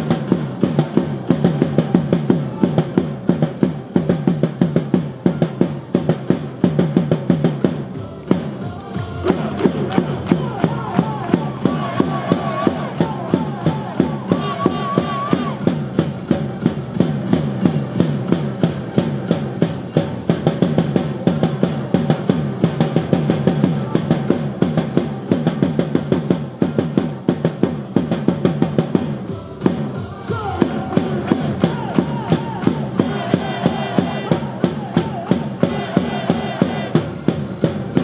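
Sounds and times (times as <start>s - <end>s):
fast steady drumming: 0.0s - 38.0s
cheer music melody: 8.0s - 15.9s, 29.3s - 37.2s.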